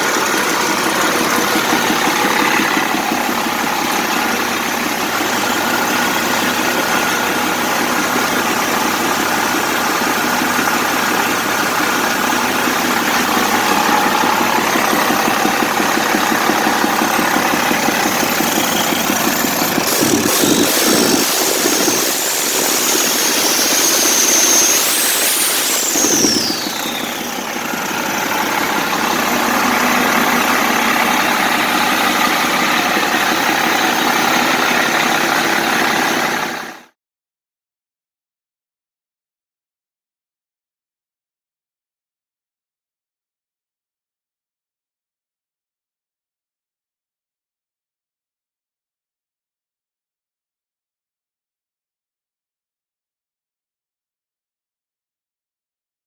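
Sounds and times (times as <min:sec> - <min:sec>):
diesel engine running: 0:00.0 - 0:36.9
high whine: 0:10.4 - 0:35.3.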